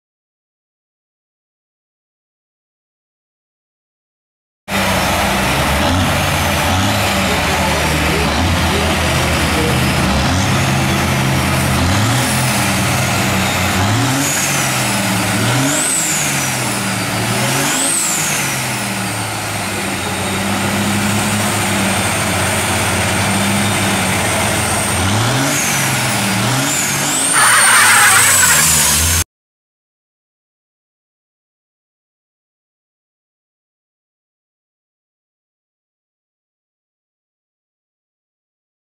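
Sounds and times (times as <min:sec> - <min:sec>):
diesel truck engine revving: 0:04.7 - 0:29.2
high whistle: 0:27.3 - 0:29.1.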